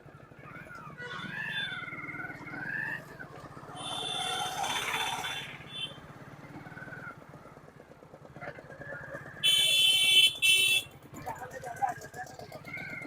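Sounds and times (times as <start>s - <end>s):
small motorcycle engine running: 0.0s - 13.0s.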